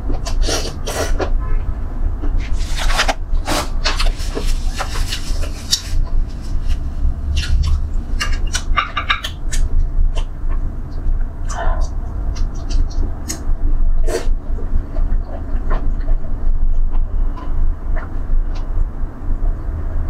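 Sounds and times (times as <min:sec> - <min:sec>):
steady low hum: 0:00.0 - 0:20.0
chewing and mouth noises: 0:03.5 - 0:18.8.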